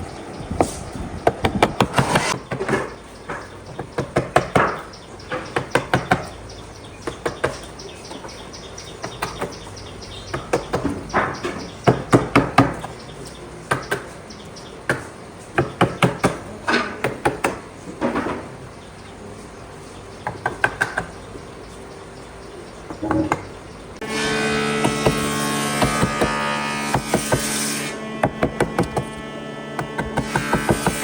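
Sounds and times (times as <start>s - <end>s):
hammering on wood: 0.6s - 6.4s, 7.0s - 8.3s, 10.3s - 13.0s, 13.7s - 14.1s, 14.8s - 18.4s, 20.2s - 21.2s, 24.6s - 29.2s, 29.8s - 31.0s.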